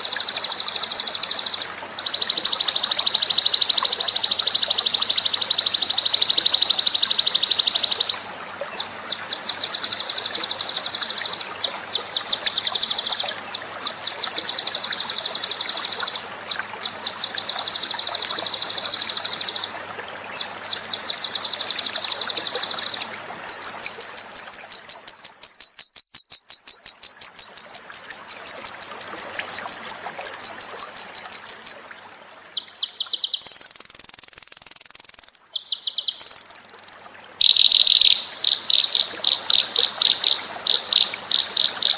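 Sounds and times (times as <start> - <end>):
songbird trilling: 0.0 - 16.2, 20.4 - 31.8, 32.4 - 41.9.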